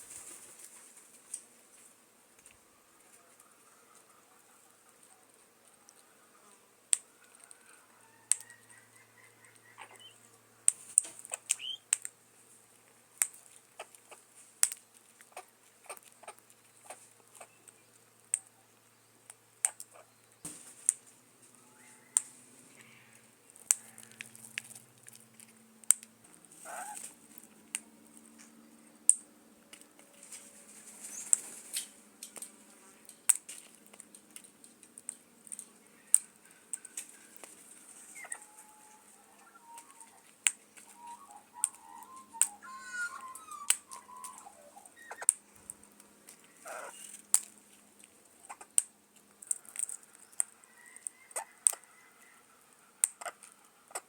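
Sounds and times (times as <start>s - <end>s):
bird warbling calls: 38.1s - 45.3s
bird clicking: 41.6s - 42.6s.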